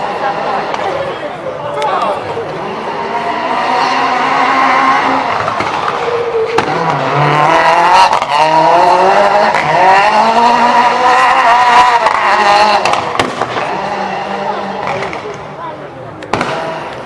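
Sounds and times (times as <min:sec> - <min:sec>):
rally car engine revving: 0:00.0 - 0:17.0
sharp exhaust bangs: 0:02.6 - 0:15.3, 0:16.3 - 0:17.0.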